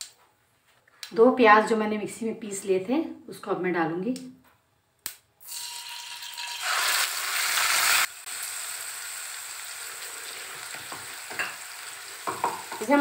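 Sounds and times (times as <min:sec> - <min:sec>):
onion paste sizzling in oil: 0:05.4 - 0:13.0.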